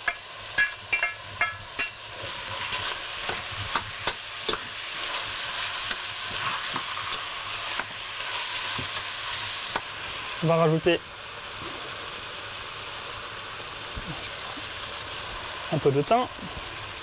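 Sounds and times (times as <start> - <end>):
food sizzling: 0.0 - 17.0.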